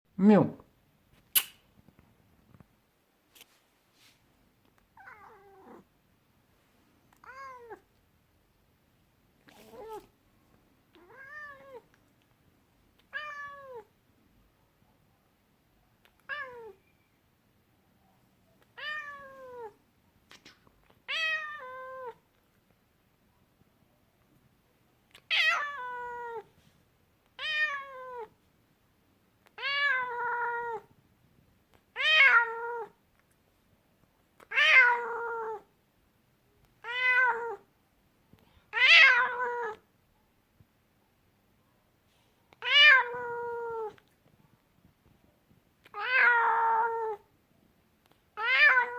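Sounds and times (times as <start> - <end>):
cat meowing: 5.0 - 5.9, 7.2 - 7.8, 9.5 - 10.1, 10.9 - 11.9, 13.1 - 13.9, 16.1 - 16.9, 18.8 - 19.8, 21.1 - 22.2, 25.2 - 26.5, 27.4 - 28.4, 29.5 - 30.9, 32.0 - 33.0, 34.4 - 35.7, 36.8 - 37.7, 38.7 - 39.8, 42.6 - 44.0, 45.8 - 47.3, 48.4 - 48.9.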